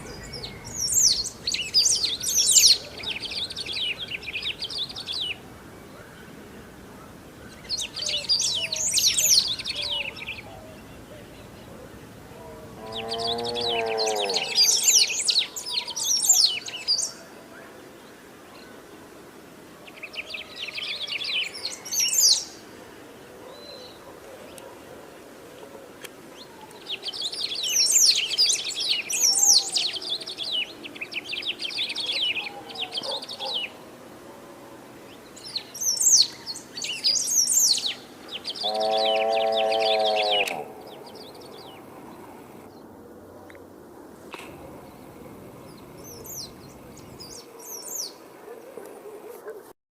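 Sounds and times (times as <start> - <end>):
nasal bird call: 37.4 - 42.7.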